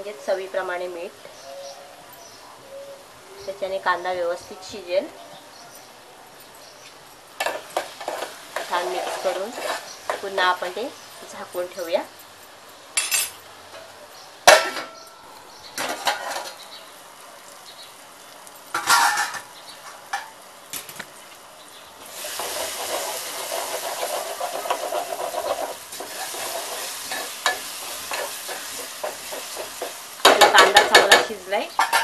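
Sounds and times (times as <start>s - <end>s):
vegetables sizzling in oil: 3.0s - 32.0s
spoon scraping in a pot: 7.4s - 10.4s, 22.2s - 30.6s
metal clanks against a pot: 14.5s - 15.1s, 15.8s - 16.6s, 18.7s - 20.4s, 25.9s - 32.0s.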